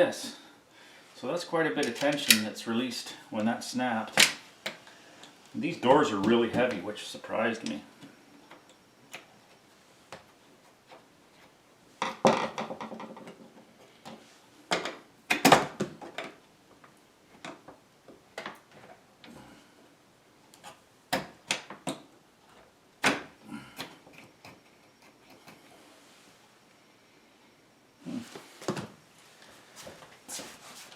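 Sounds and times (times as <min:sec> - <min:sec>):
tools and metal parts clattering: 0:01.8 - 0:02.4.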